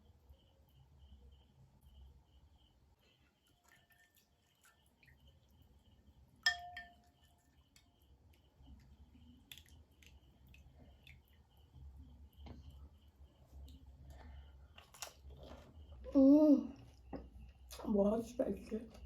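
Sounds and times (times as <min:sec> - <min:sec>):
crickets chirping: 0:00.0 - 0:19.0
tableware clinking: 0:06.4 - 0:07.1.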